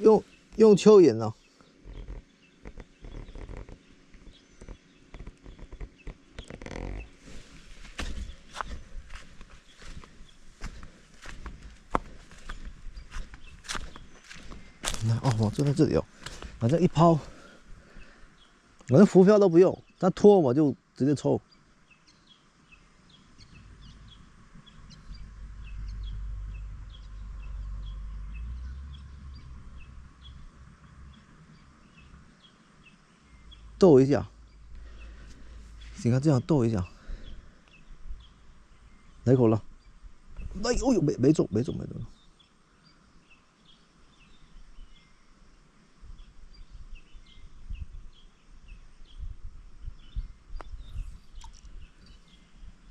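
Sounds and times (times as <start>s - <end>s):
low uneven rumble: 0.0s - 19.1s, 22.7s - 42.1s
small birds chirping: 0.0s - 52.9s.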